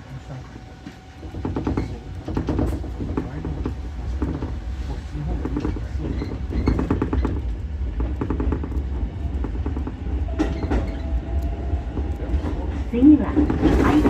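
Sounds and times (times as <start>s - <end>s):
train interior rumble: 0.0s - 14.0s.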